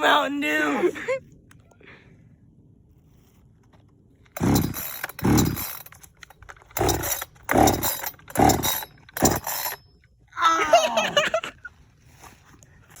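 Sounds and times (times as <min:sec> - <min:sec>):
chainsaw starter cord yanks: 0:04.3 - 0:09.8.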